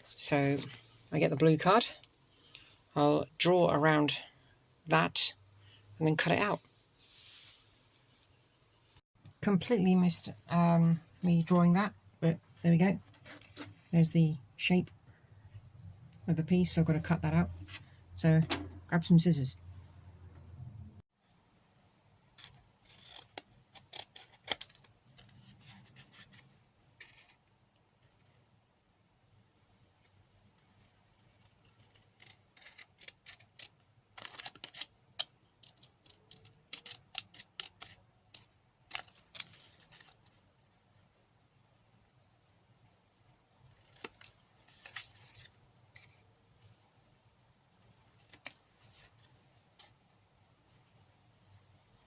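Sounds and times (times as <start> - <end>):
card rustling: 43.7 - 46.3.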